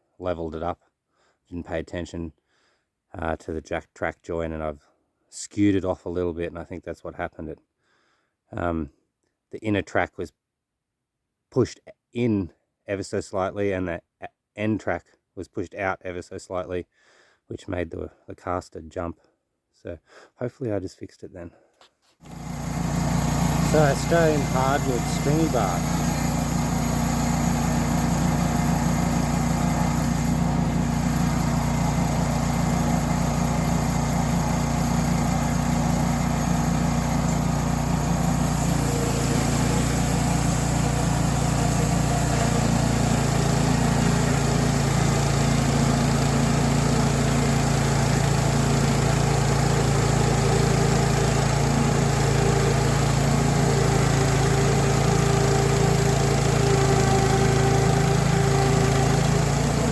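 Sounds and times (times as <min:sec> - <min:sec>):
saw cutting wood: 0:22.2 - 0:59.9
small petrol engine running: 0:22.2 - 0:59.9.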